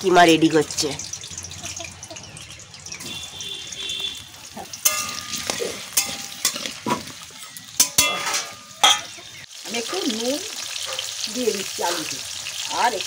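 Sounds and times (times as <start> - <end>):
potatoes sizzling in hot oil: 0.0 - 13.0
metal spatula scraping pan: 3.9 - 9.2
spatula clanking on pan: 4.7 - 9.2.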